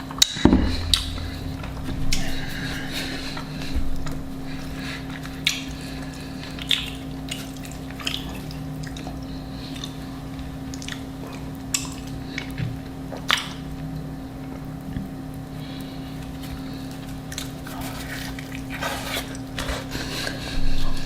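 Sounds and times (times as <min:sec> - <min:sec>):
low electrical hum: 0:00.0 - 0:21.0
chewing and mouth smacks: 0:05.0 - 0:13.8, 0:16.2 - 0:20.4.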